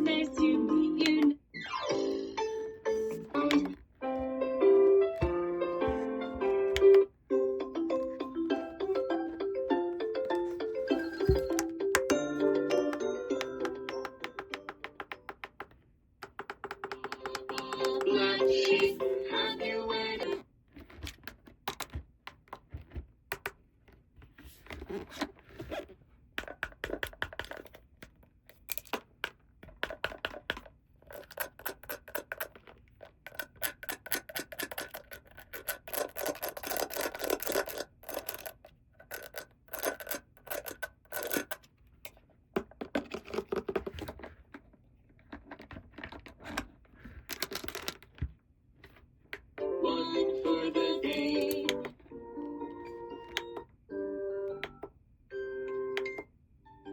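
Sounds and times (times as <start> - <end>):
hands handling plastic toy pieces: 20.2 - 49.5.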